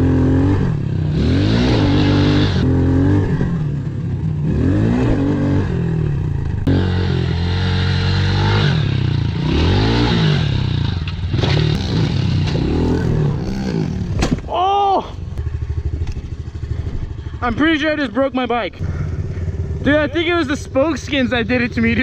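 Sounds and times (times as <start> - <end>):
motorbike engine revving: 0.0 - 14.5.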